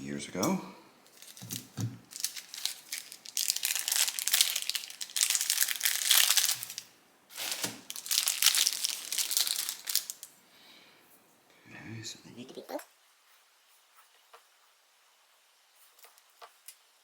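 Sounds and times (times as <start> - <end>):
packaging crinkling: 1.1 - 10.3.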